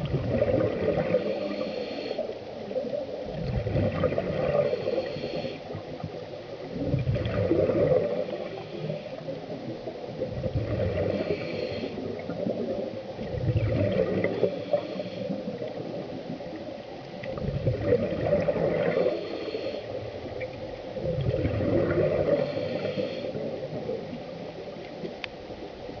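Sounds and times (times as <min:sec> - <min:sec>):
gurgling exhaled bubbles: 0:00.0 - 0:01.6, 0:02.8 - 0:16.6, 0:17.2 - 0:24.8
hissing regulator inhale: 0:01.0 - 0:02.5, 0:04.4 - 0:05.8, 0:08.0 - 0:09.4, 0:10.9 - 0:12.3, 0:14.0 - 0:15.8, 0:18.8 - 0:20.1, 0:22.0 - 0:23.5.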